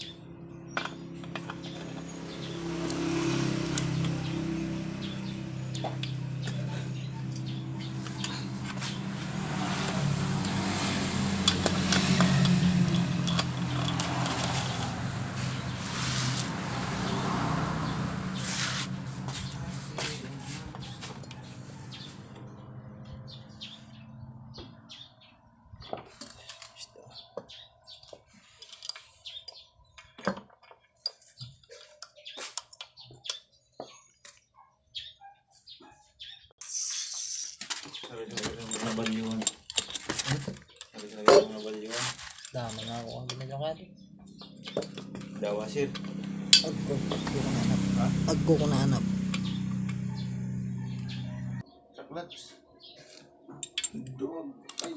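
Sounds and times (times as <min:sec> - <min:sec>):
metallic clicks of engine parts: 0:00.8 - 0:04.4, 0:05.0 - 0:09.0, 0:09.9 - 0:15.7, 0:28.6 - 0:33.5, 0:37.5 - 0:41.6, 0:44.2 - 0:47.5, 0:49.2 - 0:50.1, 0:53.1 - 0:54.9.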